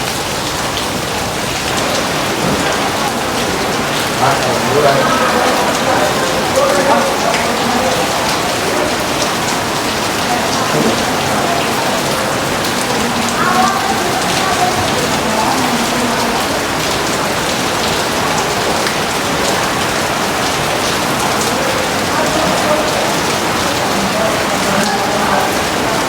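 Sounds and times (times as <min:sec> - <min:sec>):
heavy rain pattering: 0:00.0 - 0:26.0.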